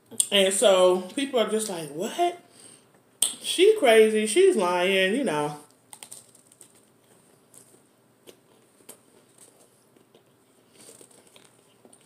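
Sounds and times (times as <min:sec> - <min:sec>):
person chewing food: 0:05.9 - 0:12.0.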